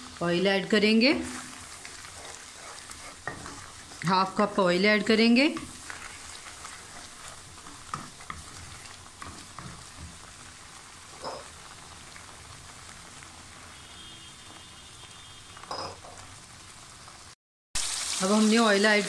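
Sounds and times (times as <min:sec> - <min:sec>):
gravy sizzling in oil: 0:00.0 - 0:19.0
wooden spoon scraping a pan: 0:01.1 - 0:10.3.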